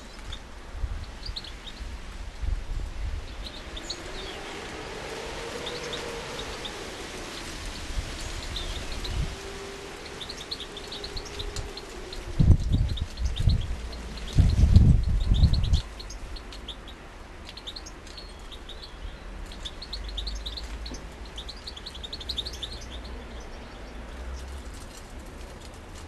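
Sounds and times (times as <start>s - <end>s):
finches chirping: 5.5s - 9.4s, 10.0s - 24.4s.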